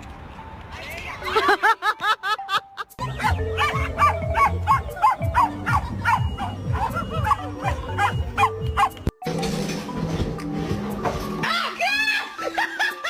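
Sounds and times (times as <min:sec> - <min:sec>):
background music with beat: 0:02.8 - 0:11.4
dog barking in high yips: 0:03.2 - 0:09.0.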